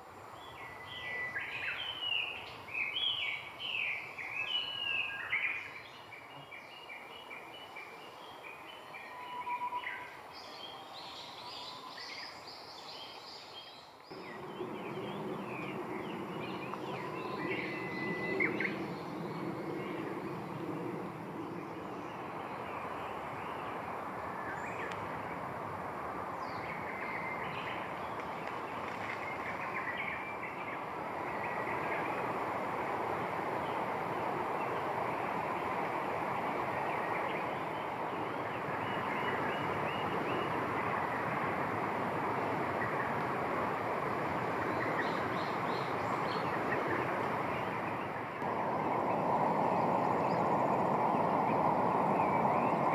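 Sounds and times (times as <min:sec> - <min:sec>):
wild birds chirping: 0:00.2 - 0:52.9
steady rushing noise: 0:14.1 - 0:52.9.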